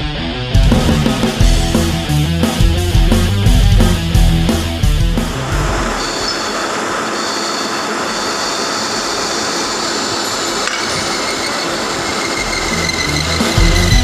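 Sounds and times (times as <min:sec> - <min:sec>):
high-pitched whine: 0:04.9 - 0:14.0
metal lathe cutting steel: 0:05.3 - 0:14.0.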